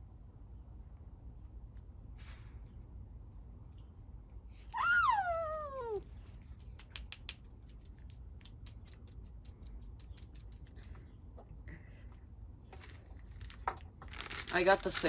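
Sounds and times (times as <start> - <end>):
child saying ooh: 4.7 - 6.0.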